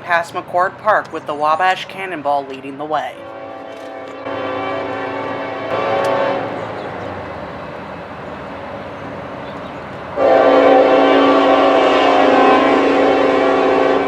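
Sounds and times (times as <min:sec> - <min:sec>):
train running noise: 0:00.0 - 0:14.0
locomotive air horn blasts: 0:03.2 - 0:06.7, 0:10.2 - 0:14.0.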